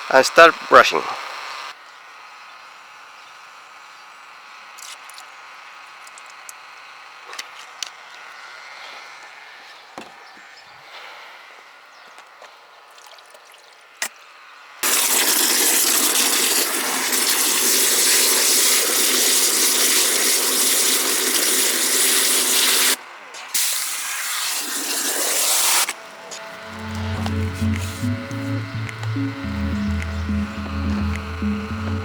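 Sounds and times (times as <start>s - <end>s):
water spraying hard: 14.8s - 26.0s, 27.3s - 28.6s.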